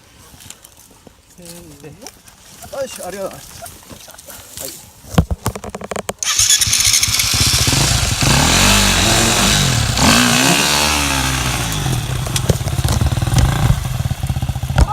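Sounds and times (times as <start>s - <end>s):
engine revving and idling: 6.2s - 14.9s.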